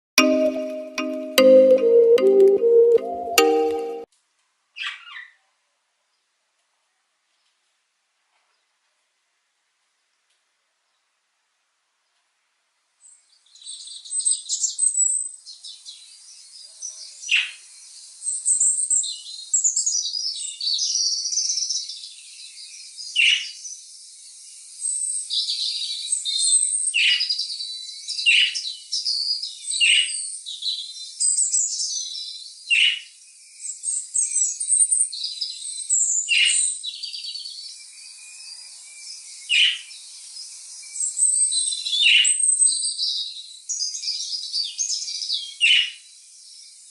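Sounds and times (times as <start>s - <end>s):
songbirds chirping and trilling: 19.9s - 46.9s.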